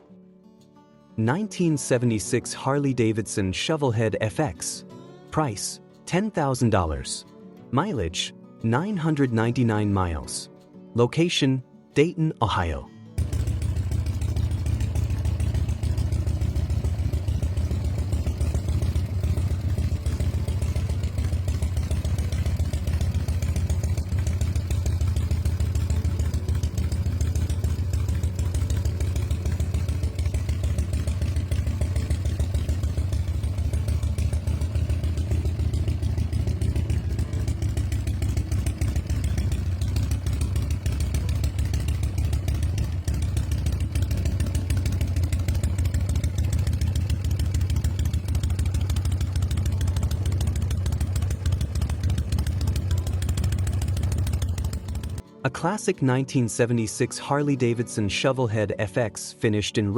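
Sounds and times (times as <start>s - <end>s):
motorcycle engine running: 13.2s - 55.3s.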